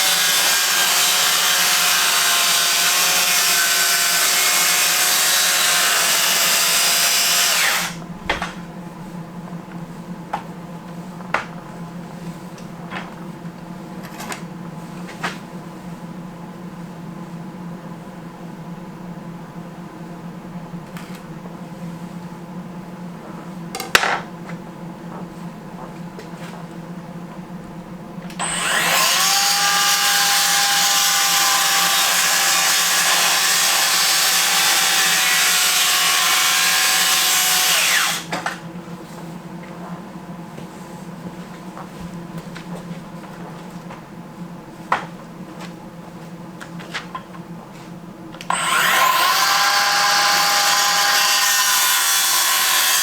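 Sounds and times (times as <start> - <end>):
electric saw cutting wood: 0.0 - 8.0, 28.4 - 38.5, 48.4 - 53.0.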